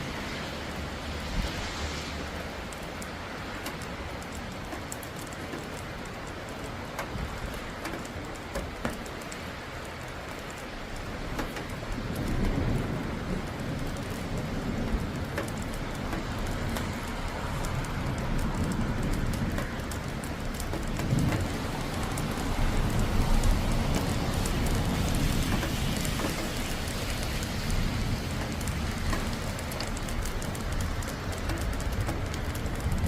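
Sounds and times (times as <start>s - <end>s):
rain falling: 0.0s - 33.0s
low thunder rumble: 11.2s - 33.0s.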